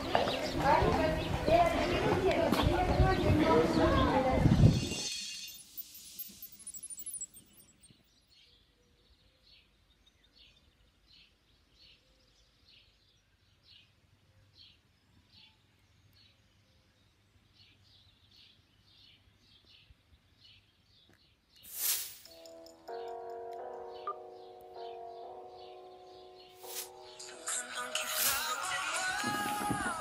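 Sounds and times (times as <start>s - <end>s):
small bird chirping: 4.8s - 13.9s.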